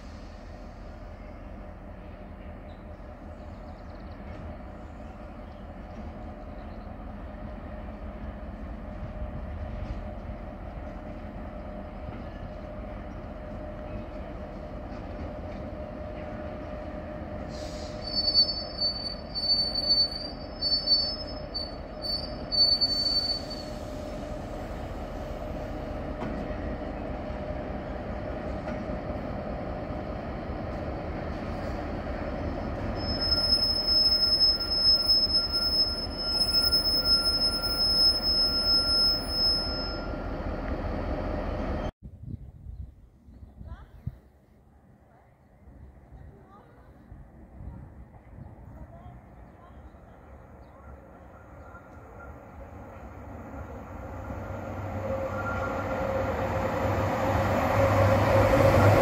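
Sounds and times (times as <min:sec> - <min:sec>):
freight train rumbling past: 0:00.0 - 0:41.9, 0:45.6 - 0:59.0
train wheels squealing: 0:17.4 - 0:25.0, 0:32.8 - 0:40.7, 0:53.6 - 0:59.0.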